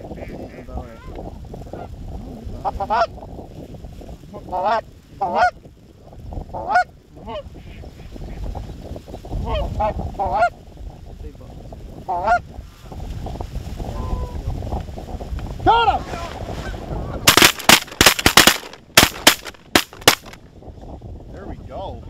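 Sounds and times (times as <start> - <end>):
low wind rumble on microphone: 0.0 - 22.0.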